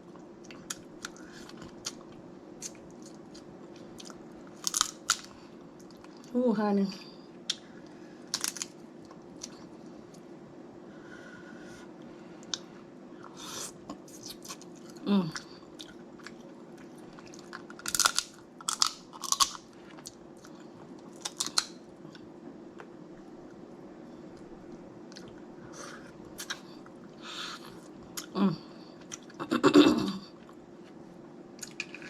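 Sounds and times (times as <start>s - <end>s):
steady low background hum: 0.0s - 32.0s
crab shells cracking and crunching: 2.6s - 5.3s, 8.3s - 8.8s, 17.3s - 19.7s, 21.1s - 21.8s
person humming: 28.3s - 28.8s.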